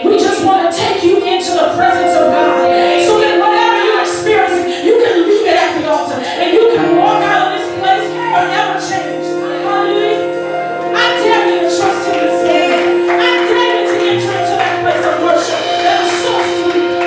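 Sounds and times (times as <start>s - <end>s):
instrumental accompaniment: 0.0s - 17.0s
gospel choir singing: 1.5s - 10.2s.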